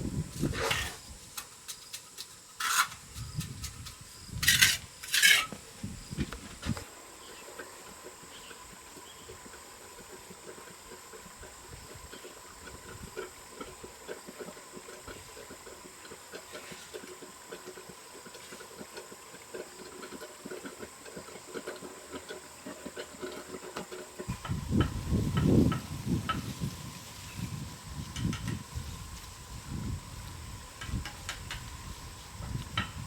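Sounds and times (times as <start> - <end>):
trowel scraping mortar on bricks: 0.4 - 6.8.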